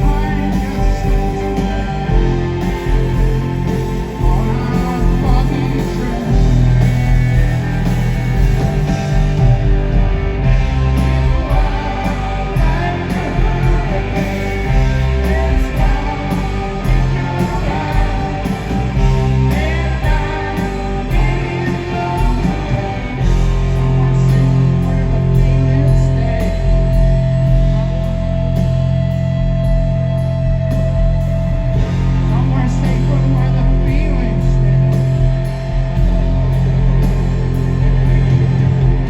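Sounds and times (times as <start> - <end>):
person singing: 0.0 - 3.3, 3.9 - 7.2, 10.5 - 27.2
live rock band playing: 0.0 - 39.0.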